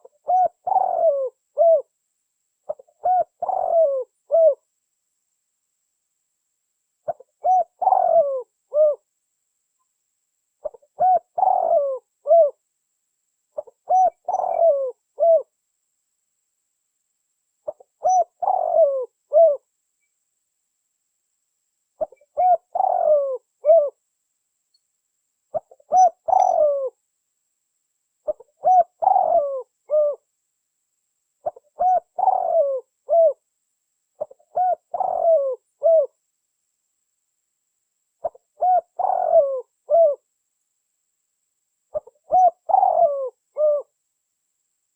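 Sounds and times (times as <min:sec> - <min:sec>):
dove cooing: 0:00.0 - 0:01.9, 0:02.7 - 0:04.6, 0:07.1 - 0:09.1, 0:10.6 - 0:12.6, 0:13.6 - 0:15.5, 0:17.7 - 0:19.6, 0:22.0 - 0:24.0, 0:25.5 - 0:27.0, 0:28.2 - 0:30.2, 0:31.4 - 0:33.4, 0:34.2 - 0:36.2, 0:38.2 - 0:40.2, 0:41.9 - 0:44.0.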